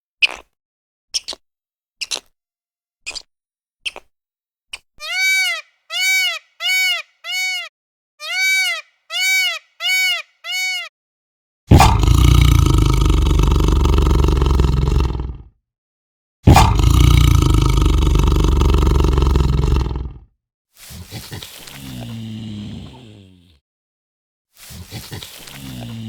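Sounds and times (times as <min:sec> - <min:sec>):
animal calls rising and falling: 0:05.0 - 0:10.9
loud rough noise: 0:16.5 - 0:19.8.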